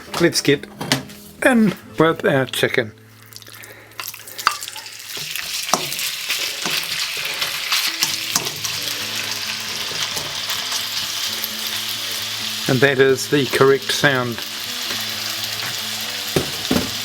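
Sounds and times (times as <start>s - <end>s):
chicken sizzling in oil: 4.0s - 17.0s.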